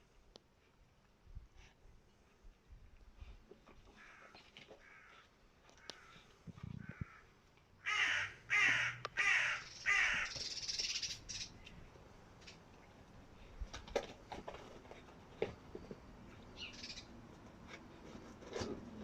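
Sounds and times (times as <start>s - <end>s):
harsh raspy animal calls: 6.8s - 10.4s.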